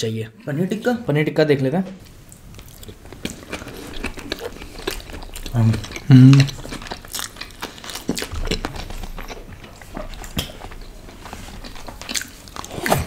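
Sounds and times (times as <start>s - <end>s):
chewing mouth clicks and smacks: 2.6s - 13.0s.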